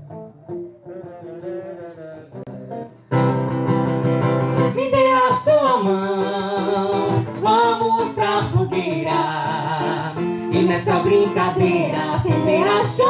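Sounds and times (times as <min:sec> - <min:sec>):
acoustic guitar playing: 0:00.0 - 0:13.0
person singing: 0:04.6 - 0:13.0.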